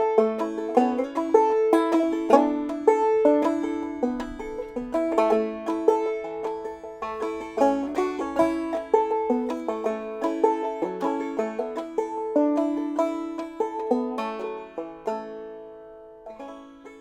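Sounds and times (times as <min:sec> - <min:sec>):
clawhammer banjo melody: 0:00.0 - 0:17.0.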